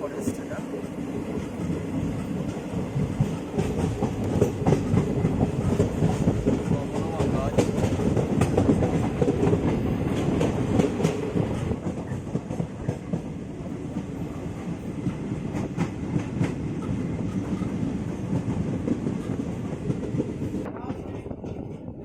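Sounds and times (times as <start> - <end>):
train rumbling on track: 0.0 - 22.0
wheels clicking over rail joints: 1.4 - 13.3.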